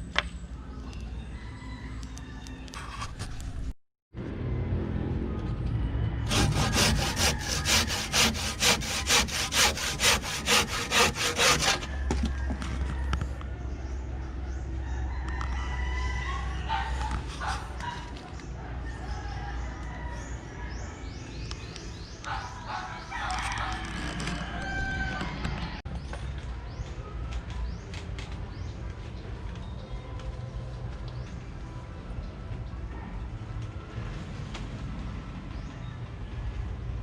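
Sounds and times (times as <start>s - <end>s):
rooster crowing: 1.2s - 2.8s, 6.0s - 13.4s, 14.8s - 17.6s, 22.8s - 25.8s
hand saw cutting wood: 6.3s - 12.1s.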